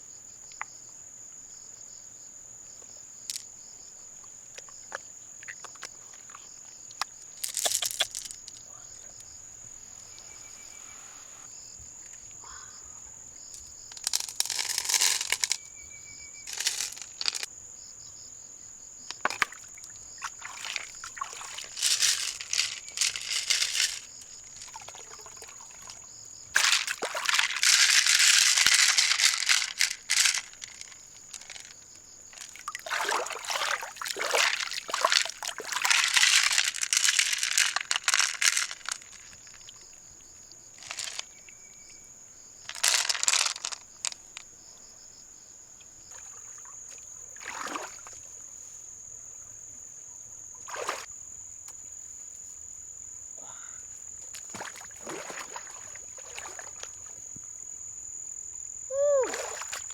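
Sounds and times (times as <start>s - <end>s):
high insect drone: 3.2s - 59.9s
water splashing and pouring: 19.3s - 26.0s, 26.6s - 30.8s, 32.4s - 39.1s, 54.5s - 56.9s.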